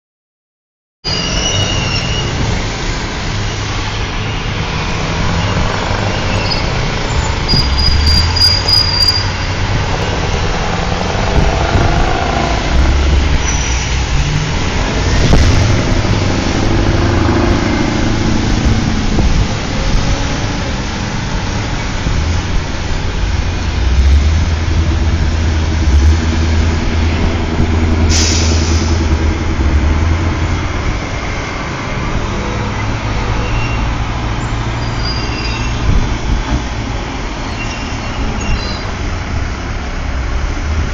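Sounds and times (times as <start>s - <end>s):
brief high squeal: 1.1s - 2.4s, 7.5s - 9.5s, 34.8s - 35.8s, 37.5s - 38.9s
truck diesel engine running: 9.3s - 34.8s.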